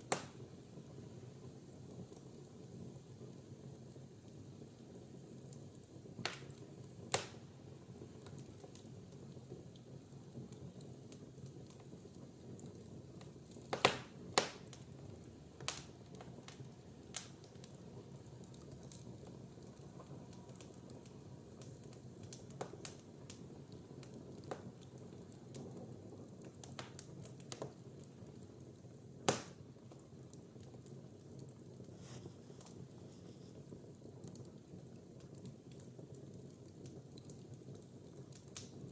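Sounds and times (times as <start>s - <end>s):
fire crackling and popping: 0.0s - 38.9s
fire hissing: 30.9s - 34.1s.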